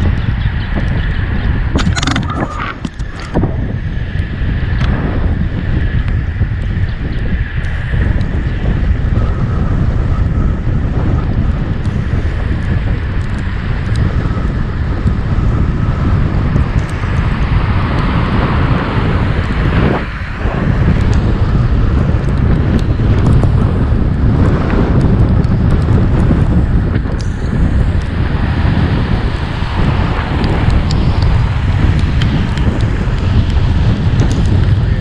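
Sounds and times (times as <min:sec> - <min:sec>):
wind rumbling on microphone: 0:00.0 - 0:35.0
road traffic passing: 0:12.0 - 0:25.2, 0:25.8 - 0:35.0.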